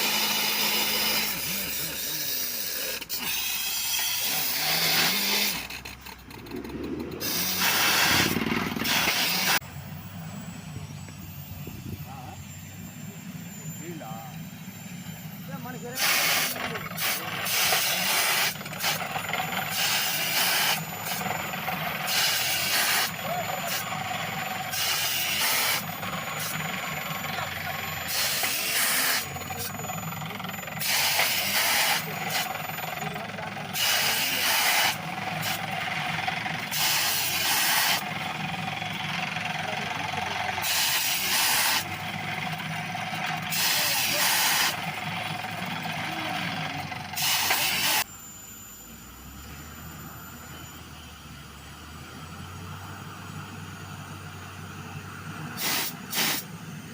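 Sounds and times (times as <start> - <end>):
drilling rig engine running: 0.0 - 56.9
loud blasts of air hiss: 7.2 - 9.6, 16.0 - 21.3, 22.0 - 24.0, 24.7 - 26.6, 28.0 - 29.4, 30.8 - 32.6, 33.7 - 35.7, 36.7 - 38.1, 40.6 - 41.9, 43.5 - 44.8, 47.1 - 48.0, 55.6 - 56.5.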